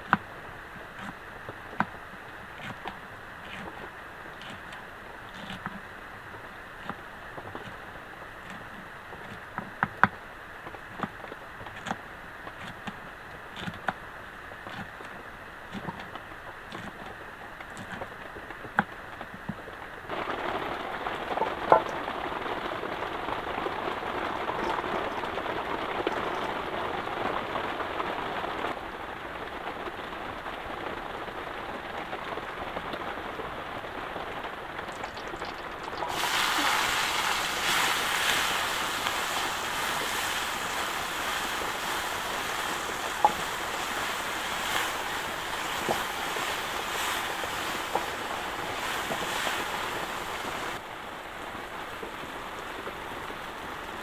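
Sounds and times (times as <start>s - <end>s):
heavy rain falling: 20.1s - 54.0s
sharp drip-like clicks: 21.3s - 22.1s, 23.6s - 27.0s, 34.8s - 36.1s.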